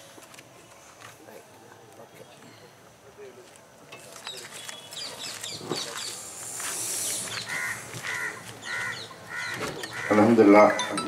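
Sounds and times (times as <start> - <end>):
birds chirping: 4.0 - 11.0
bird repeated calls: 4.3 - 11.0.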